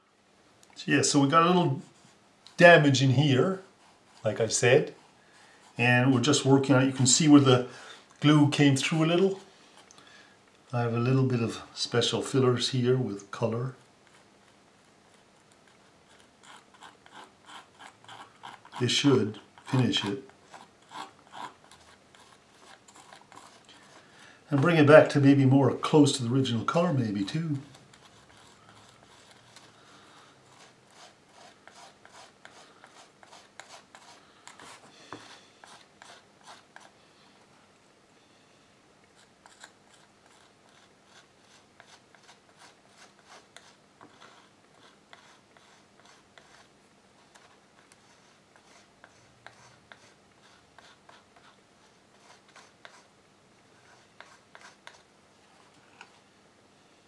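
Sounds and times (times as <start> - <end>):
metal spatula scraping paper: 16.1 - 25.3, 39.4 - 53.1, 53.8 - 55.7.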